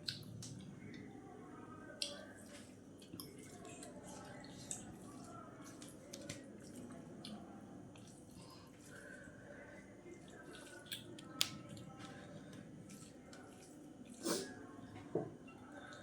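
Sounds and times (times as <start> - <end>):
chewing mouth clicks and squelches: 10.2 - 11.9.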